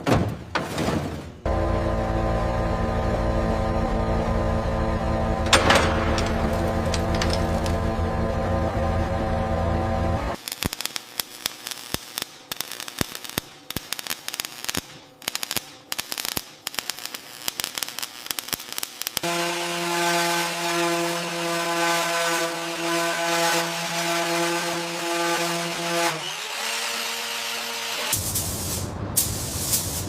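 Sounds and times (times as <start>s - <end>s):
power tool whining: 1.5s - 10.4s, 19.2s - 28.2s
clicking and scraping: 5.5s - 7.8s.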